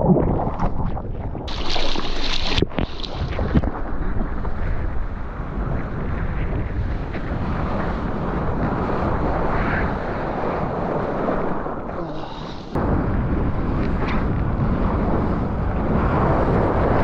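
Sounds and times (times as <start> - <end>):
rushing water: 0.0 - 6.1
wind buffeting microphone: 0.0 - 17.0.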